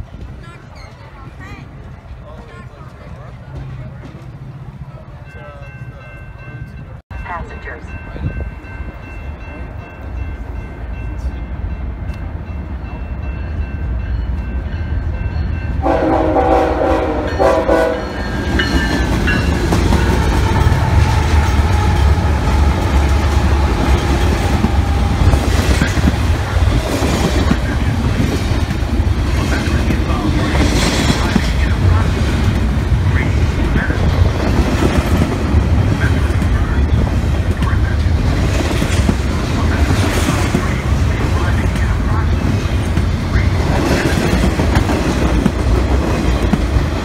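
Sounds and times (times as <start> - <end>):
diesel locomotives rumbling: 0.0 - 47.0
train horn blast: 15.8 - 18.3
wheel-on-rail noise: 18.0 - 47.0.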